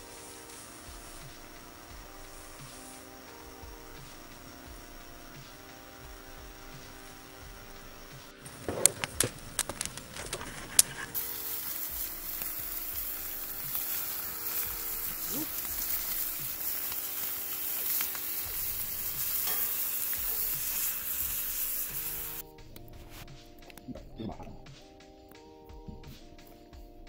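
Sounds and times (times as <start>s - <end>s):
bacon sizzling: 0.0s - 23.3s
sharp clicks: 8.4s - 11.2s.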